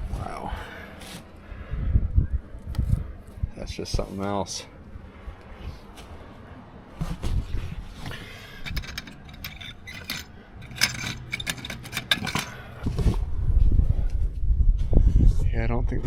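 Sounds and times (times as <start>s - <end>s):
low rumble: 12.7s - 16.0s.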